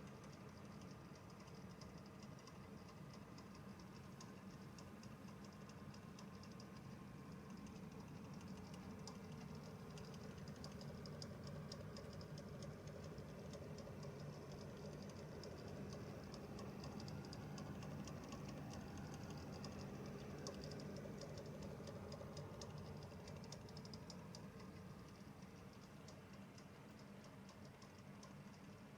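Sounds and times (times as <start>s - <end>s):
fan ticking rattle: 0.0s - 28.9s
fan humming: 6.2s - 28.9s.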